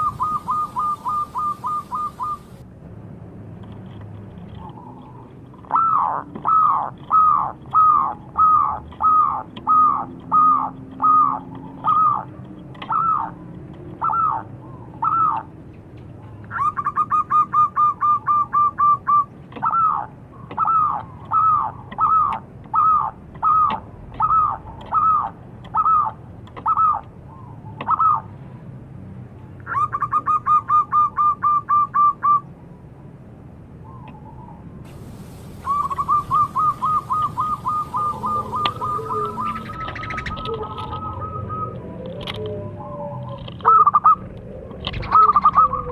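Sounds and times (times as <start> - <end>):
dove cooing: 0.0 - 2.6, 4.7 - 13.4, 35.1 - 45.9.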